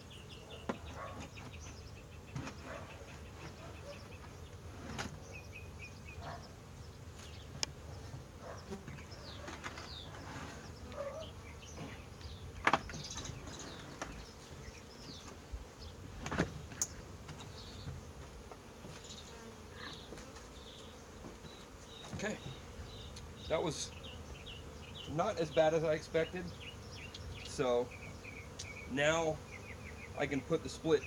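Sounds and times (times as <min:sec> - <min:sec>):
birds chirping: 0:00.0 - 0:16.1, 0:16.7 - 0:31.0
honeybees buzzing: 0:00.0 - 0:31.0.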